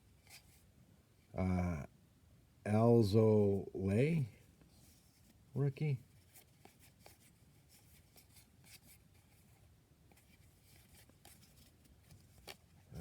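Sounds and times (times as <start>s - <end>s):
trading cards rustling and ticking: 5.6s - 12.8s.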